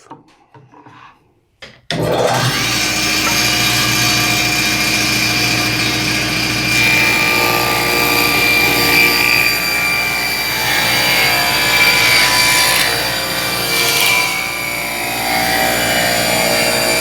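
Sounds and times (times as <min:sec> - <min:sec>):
power saw cutting wood: 0:01.9 - 0:17.0.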